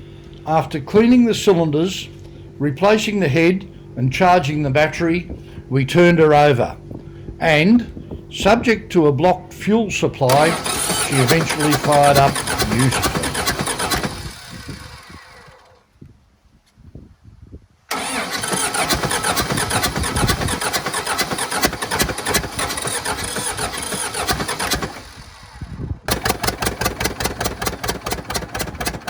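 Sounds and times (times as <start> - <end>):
tractor engine running: 0.0 - 15.9, 17.9 - 29.0.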